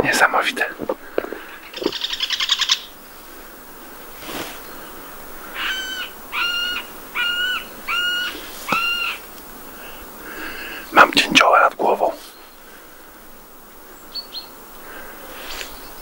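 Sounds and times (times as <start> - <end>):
bird rattling call: 1.4 - 2.9.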